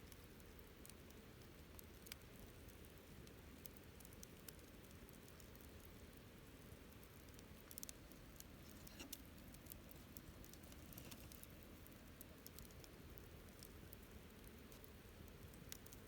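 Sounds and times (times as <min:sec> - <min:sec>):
low steady hiss: 0:00.0 - 0:16.0
wood fire crackling: 0:00.0 - 0:16.0.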